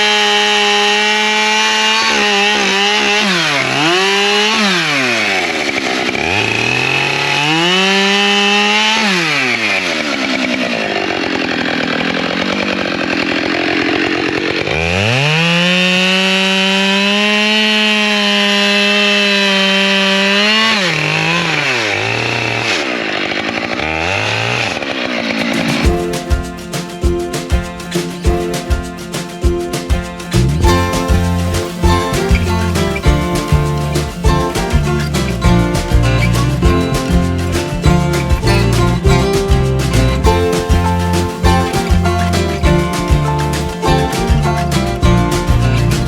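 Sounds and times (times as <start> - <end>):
chainsaw cutting wood: 0.0 - 46.0.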